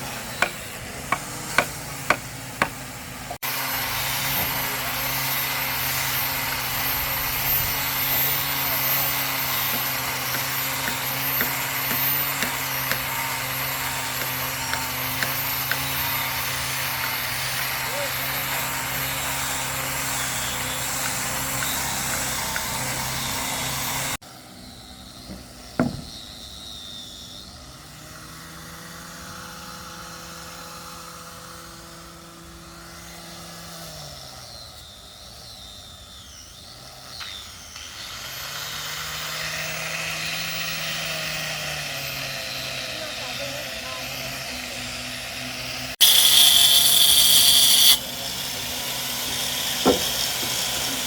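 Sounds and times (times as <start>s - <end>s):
power tool motor running: 0.0s - 24.2s, 37.7s - 51.0s
sharp knock: 25.8s - 26.2s.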